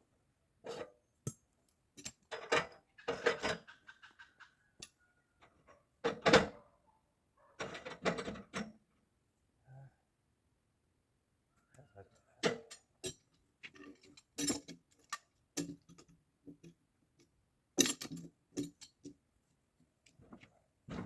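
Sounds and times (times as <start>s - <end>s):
handling knocks and rattles: 2.0s - 4.4s, 12.4s - 16.8s, 17.8s - 19.2s, 20.1s - 21.0s.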